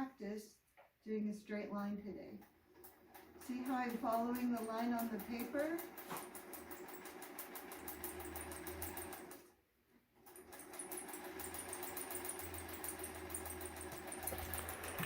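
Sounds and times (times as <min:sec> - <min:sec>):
sewing machine motor hum: 0:02.7 - 0:09.6, 0:10.2 - 0:15.0
sewing machine needle stitching: 0:02.8 - 0:09.5, 0:10.2 - 0:15.0.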